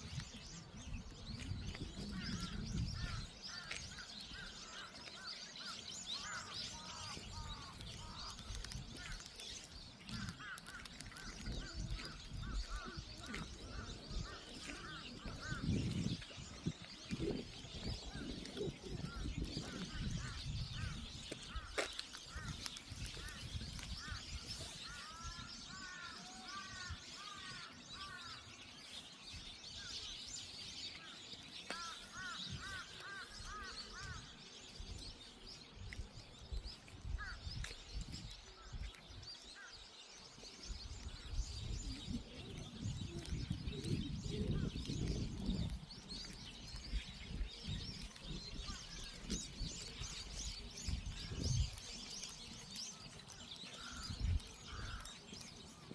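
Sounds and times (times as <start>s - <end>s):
birds chirping and singing: 0.0s - 55.9s
low uneven thumps and rumbles: 1.6s - 3.2s.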